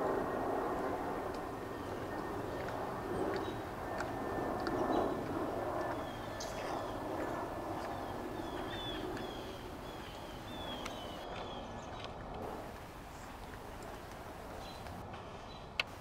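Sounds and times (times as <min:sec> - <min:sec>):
bird chirping: 0:07.8 - 0:12.2, 0:13.1 - 0:15.7.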